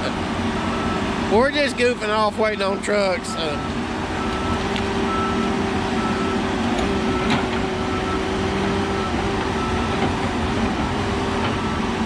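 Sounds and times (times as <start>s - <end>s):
diesel engine running: 0.0s - 12.0s
backup alarm beeping: 2.6s - 6.4s, 11.5s - 12.0s.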